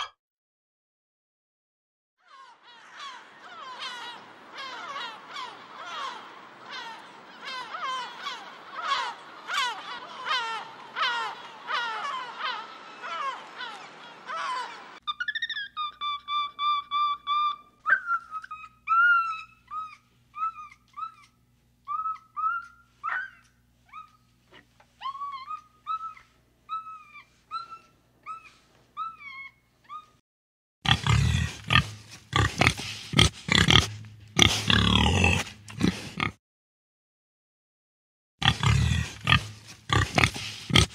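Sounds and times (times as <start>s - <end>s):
young chimpanzee calling: 2.2s - 24.3s, 25.0s - 30.2s
wild hogs grunting: 30.9s - 36.4s, 38.4s - 40.9s.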